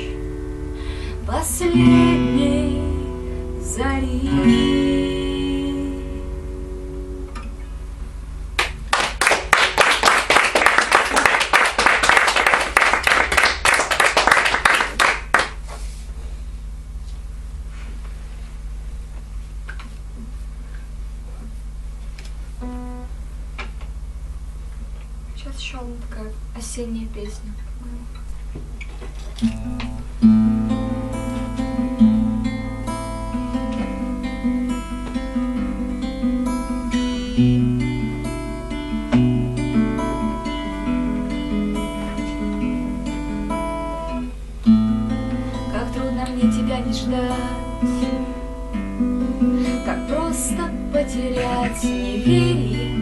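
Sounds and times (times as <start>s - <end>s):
acoustic guitar strumming: 0.0s - 9.5s, 22.6s - 24.4s, 28.1s - 53.0s
small audience applauding: 8.6s - 15.8s.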